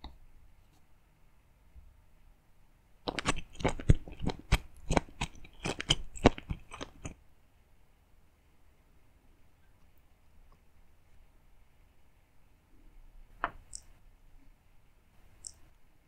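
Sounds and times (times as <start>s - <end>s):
crunching bites: 3.1s - 7.2s.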